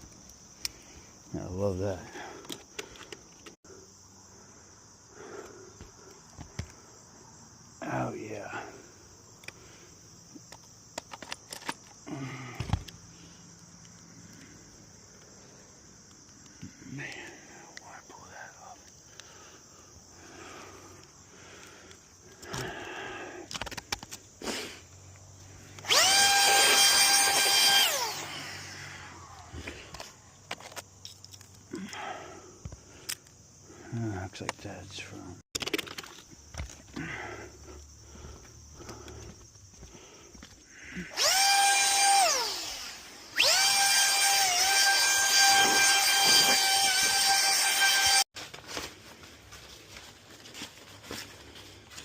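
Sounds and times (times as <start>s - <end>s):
handling clicks and scrapes: 2.3s - 3.6s, 10.4s - 12.0s, 23.5s - 24.3s, 29.4s - 31.7s, 35.5s - 37.0s
power drill motor whine: 25.7s - 30.0s, 41.1s - 48.3s.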